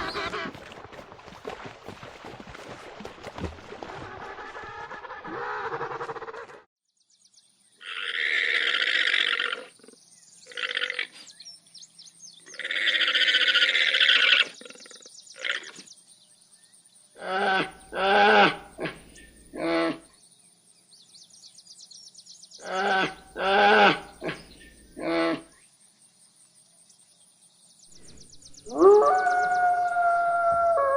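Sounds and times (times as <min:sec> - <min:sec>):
rough rasping animal calls: 0:00.0 - 0:00.6, 0:03.8 - 0:06.6, 0:07.8 - 0:11.3, 0:12.5 - 0:15.8, 0:22.6 - 0:25.5.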